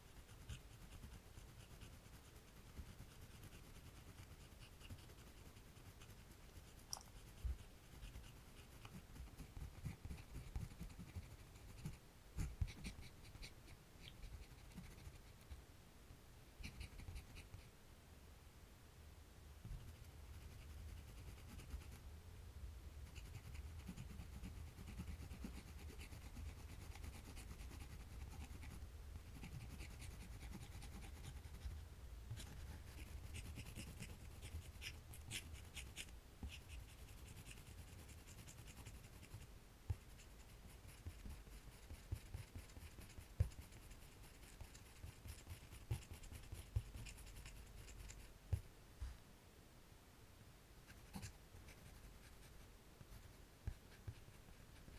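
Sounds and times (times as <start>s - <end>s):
drawing tool scratching paper: 0.0s - 15.4s, 23.1s - 31.7s, 32.3s - 48.3s.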